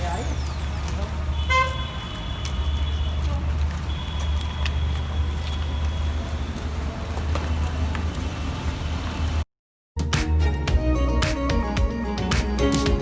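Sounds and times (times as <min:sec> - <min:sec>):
car road and engine rumble: 0:00.0 - 0:09.5
music: 0:10.0 - 0:13.0.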